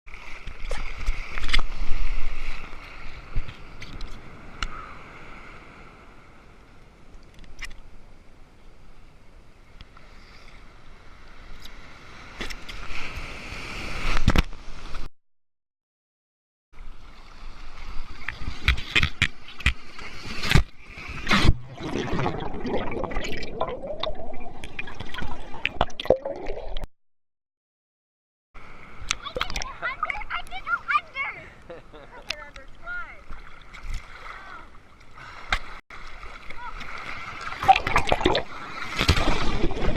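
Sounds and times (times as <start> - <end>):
sea water splashing and gurgling: 0.1 - 7.4, 16.8 - 26.9, 32.4 - 39.9
ocean surf washing: 28.6 - 33.3.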